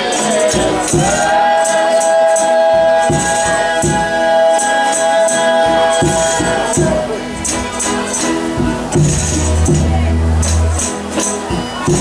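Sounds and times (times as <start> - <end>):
tambourine jingles: 0.0 - 12.0
low drum beats: 0.5 - 1.5, 2.7 - 4.6, 5.6 - 12.0.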